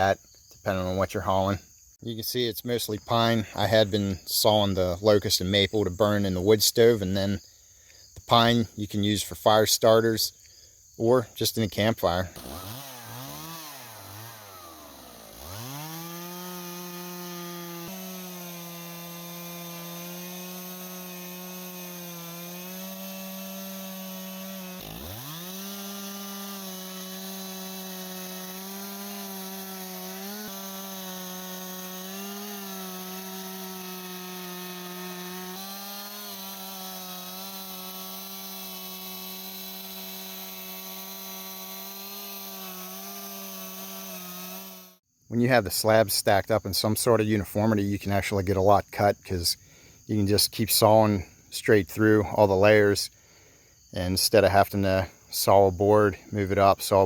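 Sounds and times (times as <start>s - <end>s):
chainsaw cutting wood: 7.9s - 45.0s.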